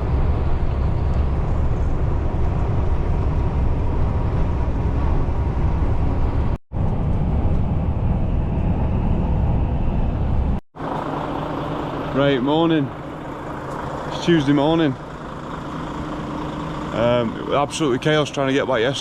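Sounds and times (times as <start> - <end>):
lorry engine and road rumble: 0.0 - 19.0.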